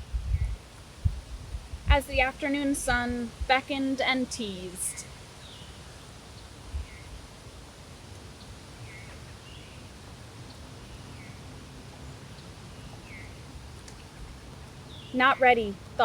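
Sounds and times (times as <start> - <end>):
steady low rumble: 0.0 - 5.1.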